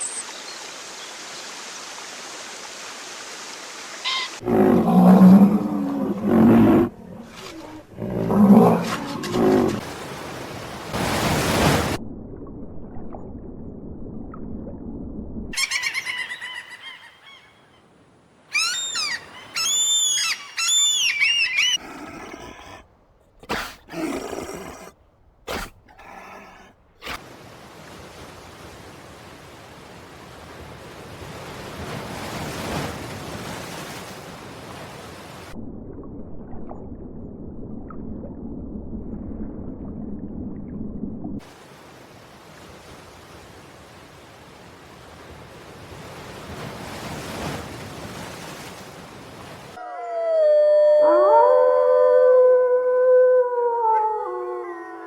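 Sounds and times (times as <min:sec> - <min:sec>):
high gliding animal calls: 0:18.5 - 0:22.8.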